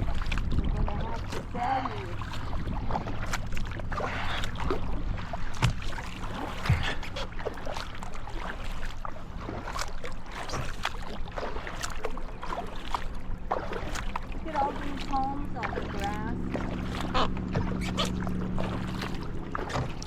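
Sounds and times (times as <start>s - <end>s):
paddle splashing water: 0.0s - 20.0s
small knocks on kayak: 5.5s - 5.9s.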